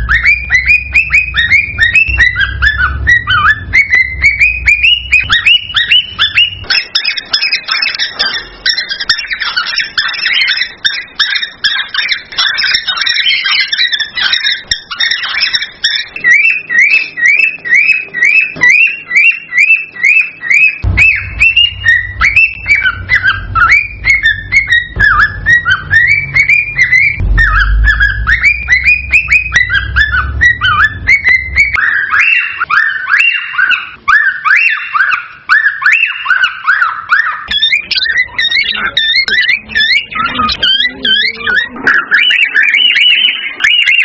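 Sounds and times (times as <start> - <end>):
cockatiel whistling song: 0.0 - 44.0
low rumble: 20.8 - 31.9.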